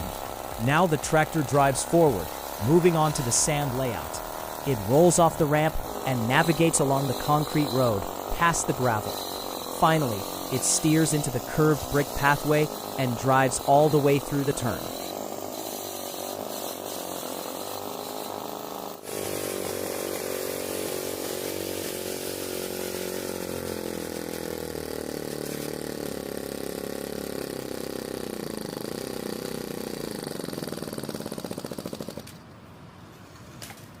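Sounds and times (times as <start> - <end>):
small petrol engine running: 0.0 - 32.4.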